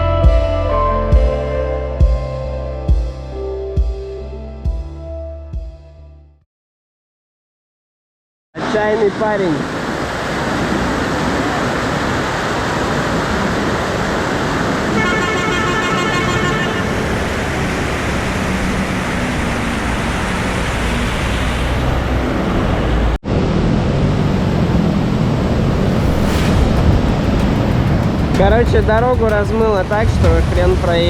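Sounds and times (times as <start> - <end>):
loud rushing noise: 9.7 - 31.0
vehicle horn: 14.9 - 17.8.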